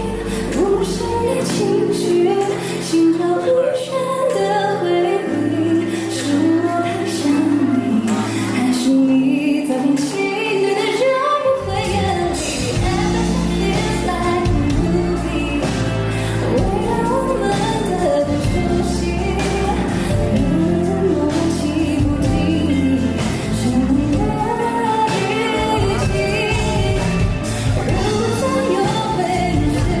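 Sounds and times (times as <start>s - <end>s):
woman singing a pop ballad: 0.0s - 30.0s
band accompaniment: 12.4s - 30.0s.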